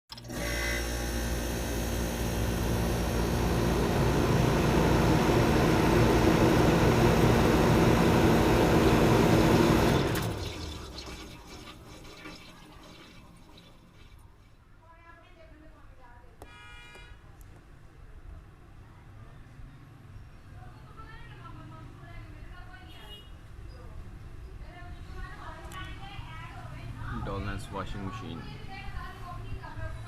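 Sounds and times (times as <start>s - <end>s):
water rushing in washing machine: 0.1s - 14.6s.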